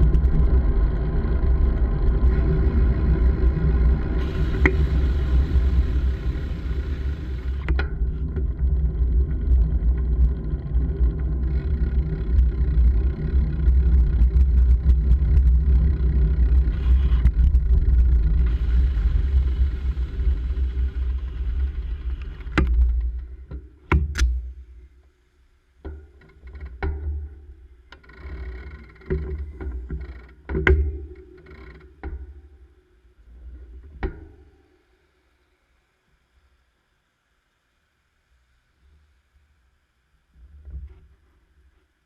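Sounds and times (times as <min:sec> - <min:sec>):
wind buffeting microphone: 0:00.0 - 0:07.7
sharp clicks and knocks: 0:07.4 - 0:08.5, 0:22.1 - 0:24.5, 0:28.7 - 0:32.3.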